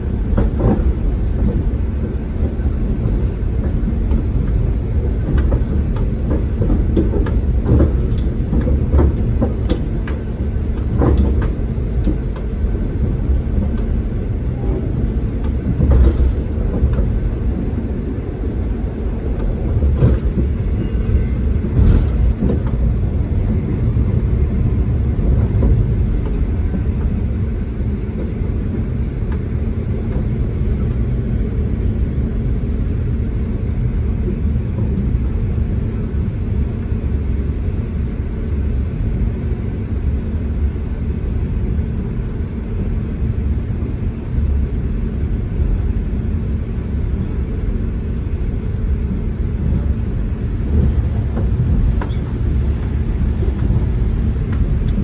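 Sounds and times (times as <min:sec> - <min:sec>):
train wheels rumbling on rail: 0:00.0 - 0:55.0
track knocks and clicks: 0:00.2 - 0:18.6, 0:19.2 - 0:27.2, 0:28.0 - 0:31.1, 0:49.1 - 0:55.0.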